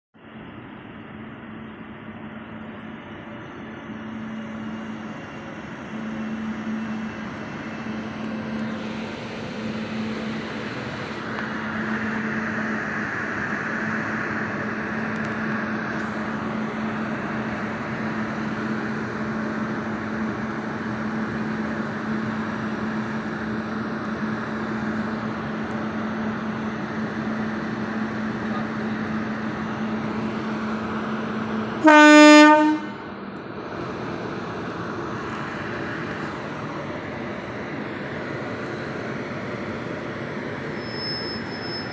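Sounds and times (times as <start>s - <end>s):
train locomotive humming: 0.2s - 41.9s
train horn blast: 31.8s - 33.0s.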